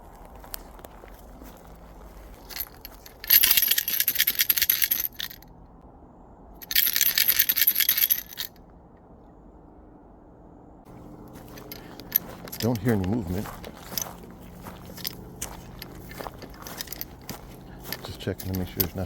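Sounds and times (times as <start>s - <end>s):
rapid rattling: 2.5s - 5.4s, 6.6s - 8.5s, 11.1s - 19.0s.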